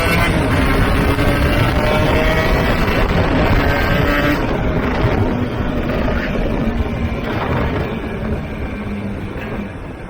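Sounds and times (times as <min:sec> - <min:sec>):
two-stroke motorcycle engine rumble: 0:00.0 - 0:10.0
wind on microphone: 0:00.0 - 0:10.0.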